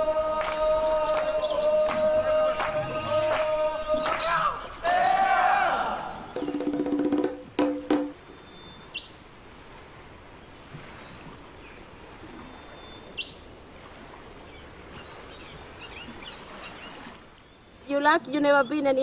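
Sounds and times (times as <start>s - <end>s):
outdoor background hiss: 0.0s - 19.0s
bird whistling call: 0.8s - 3.4s
sharp knocks: 6.4s - 8.2s.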